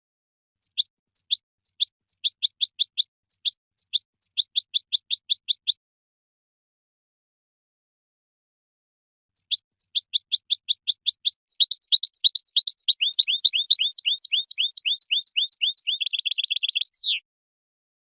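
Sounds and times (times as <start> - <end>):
finch singing: 0.6 - 5.8, 9.4 - 17.2.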